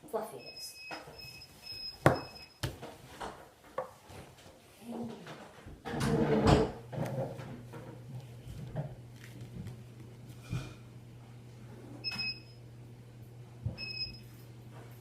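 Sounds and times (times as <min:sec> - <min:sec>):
household objects knocking and clattering: 0:02.0 - 0:04.0.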